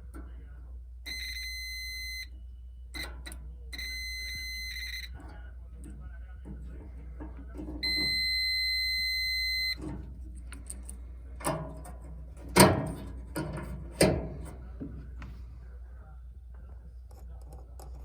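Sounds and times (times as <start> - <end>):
multimeter continuity beep: 1.0 - 5.4, 7.8 - 10.0
handling clicks and knocks: 9.7 - 15.4.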